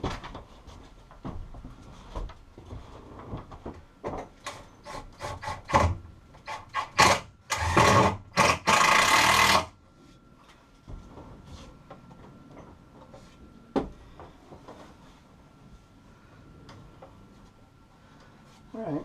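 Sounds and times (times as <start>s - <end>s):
power drill bursts: 6.5s - 9.7s.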